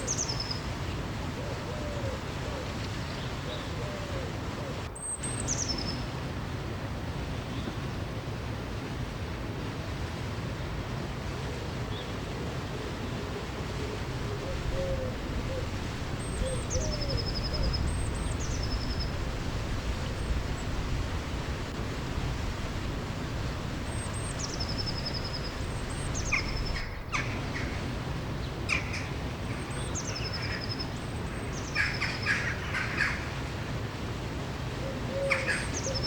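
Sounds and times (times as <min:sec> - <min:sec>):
river water rushing: 0:02.3 - 0:35.9
songbird trilling: 0:14.4 - 0:19.2, 0:23.9 - 0:27.8, 0:28.7 - 0:33.3.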